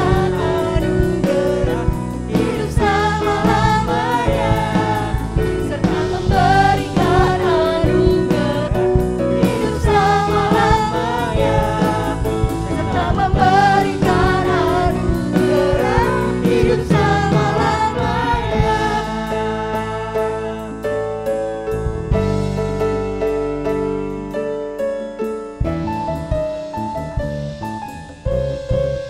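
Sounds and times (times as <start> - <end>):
person singing: 0.0 - 21.4
worship band playing gospel: 0.0 - 29.0.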